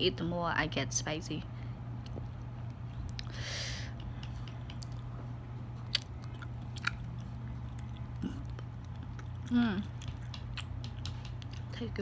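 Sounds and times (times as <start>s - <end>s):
low hum: 0.0s - 12.0s
person chewing: 2.0s - 3.4s, 4.2s - 11.7s.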